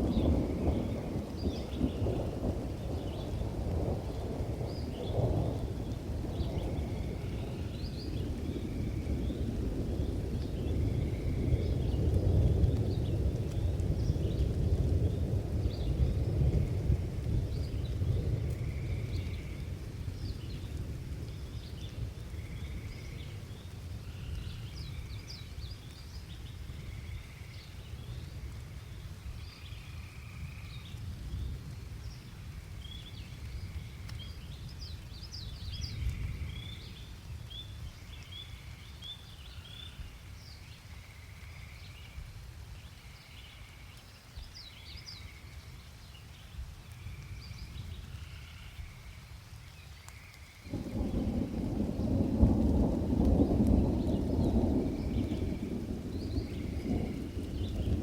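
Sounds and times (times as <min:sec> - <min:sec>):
distant thunder rumble: 0:00.0 - 0:23.6, 0:50.6 - 0:58.0.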